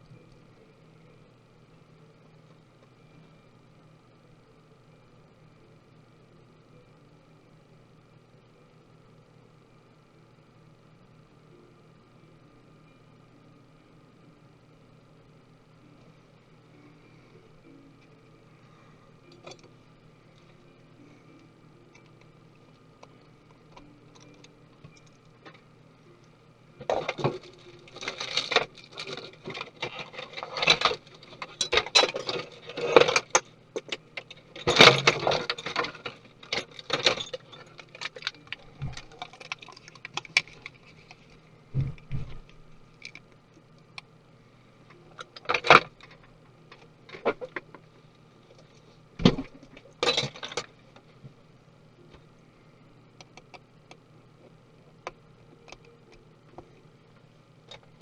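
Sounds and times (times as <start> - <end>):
small metal parts clinking: 26.8 - 41.2, 50.0 - 50.7.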